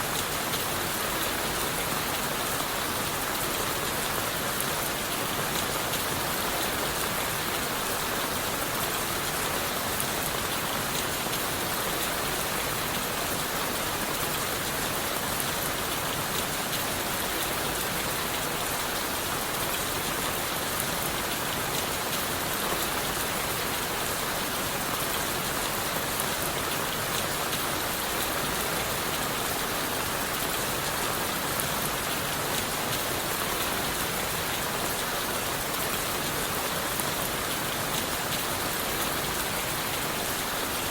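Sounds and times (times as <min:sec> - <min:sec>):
rain falling on leaves: 0:00.0 - 0:40.9.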